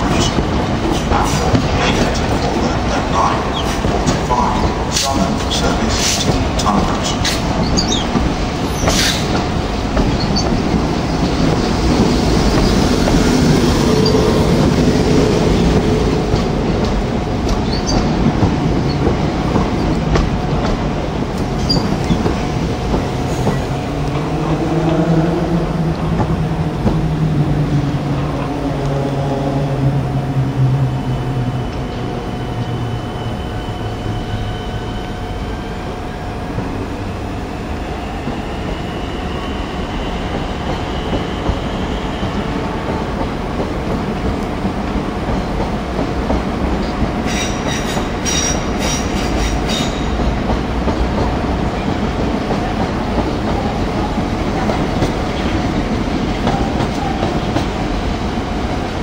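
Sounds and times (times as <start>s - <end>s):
train wheels rumbling and clicking: 0.0s - 59.0s
high wheel squeal: 7.6s - 9.3s, 21.6s - 22.2s.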